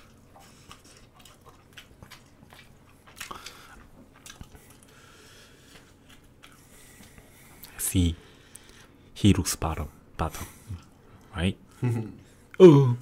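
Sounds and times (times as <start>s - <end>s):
faint chewing: 0.0s - 9.0s.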